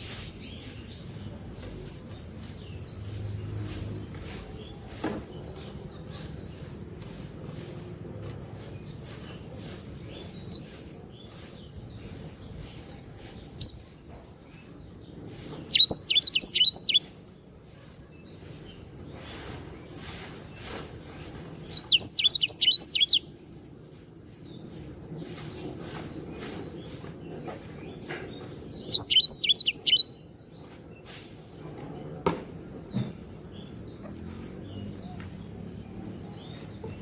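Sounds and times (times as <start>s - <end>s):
finch chirps: 0.0s - 32.1s
finch trilling song: 9.6s - 14.0s, 15.5s - 17.2s, 21.6s - 23.3s, 28.1s - 30.2s.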